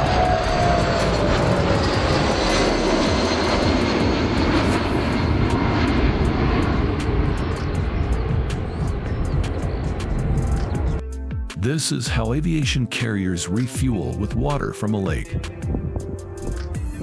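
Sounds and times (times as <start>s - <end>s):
falling engine whine: 0.0s - 11.0s
aircraft engines passing overhead: 0.0s - 12.2s, 13.0s - 17.0s.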